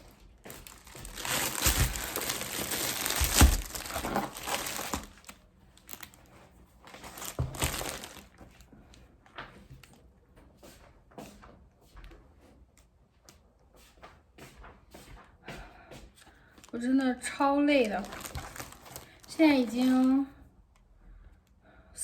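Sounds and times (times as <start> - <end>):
plastic bags rustling: 0.0 - 8.6, 16.5 - 20.3
thumps: 0.6 - 5.1.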